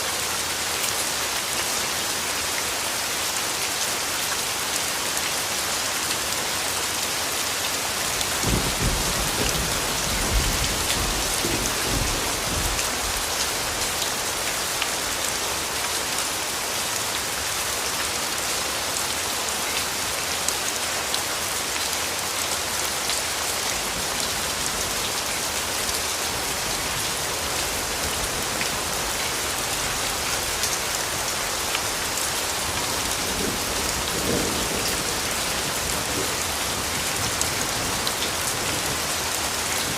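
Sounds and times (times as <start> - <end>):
rain falling: 0.0 - 39.9
distant thunder rumble: 8.4 - 13.3.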